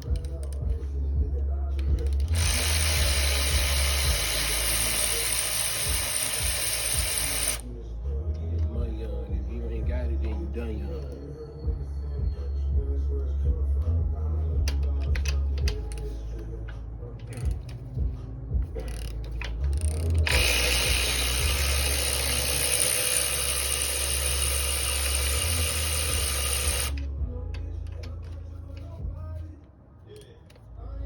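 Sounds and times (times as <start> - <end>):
ratchet wrench clicking: 0.0 - 0.8, 1.8 - 7.6, 14.6 - 29.0.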